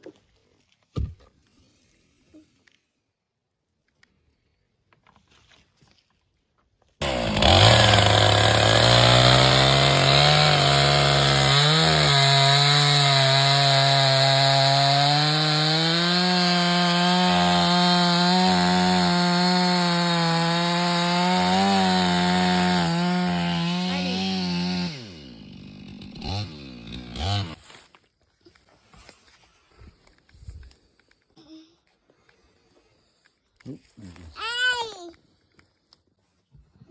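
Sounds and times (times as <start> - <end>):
chainsaw cutting wood: 7.0 - 27.9.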